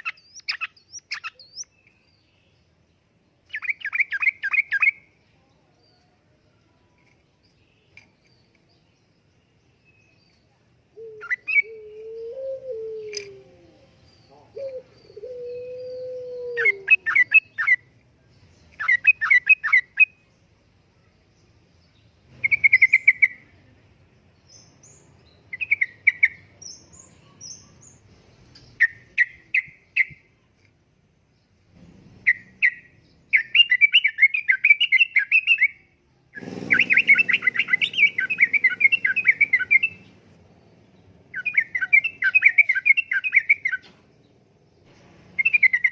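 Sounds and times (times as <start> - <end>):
bulbul singing chattering phrases: 10.1 - 20.3, 32.2 - 43.9.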